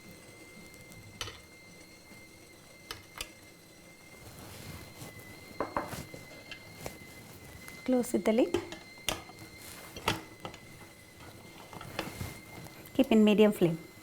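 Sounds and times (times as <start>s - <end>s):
faint high whine: 0.0s - 14.0s.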